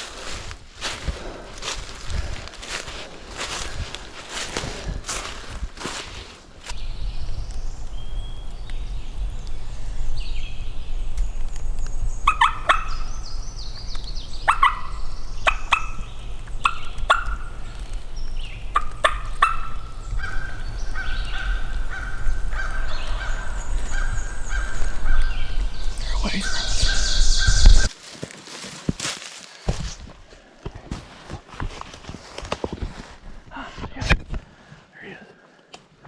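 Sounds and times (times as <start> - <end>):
turkey gobbling: 6.8 - 27.9.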